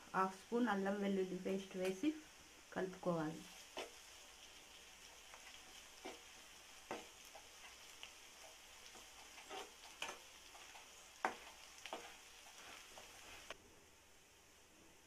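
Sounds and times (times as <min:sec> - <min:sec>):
faint sizzle of frying: 0:00.0 - 0:15.0
spoon scraping and knocking a pan: 0:03.4 - 0:13.6.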